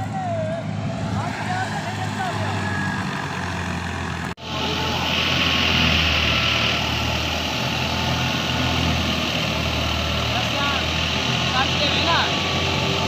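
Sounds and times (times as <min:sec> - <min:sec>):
heavy engine humming: 0:00.0 - 0:13.0
hiss: 0:04.7 - 0:07.2.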